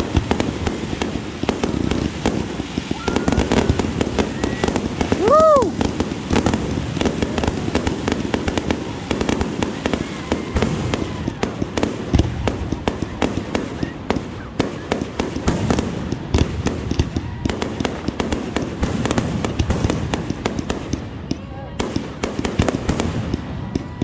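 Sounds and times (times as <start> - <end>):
fireworks bangs and crackling: 0.0 - 24.0
loud fireworks booms: 0.0 - 24.0.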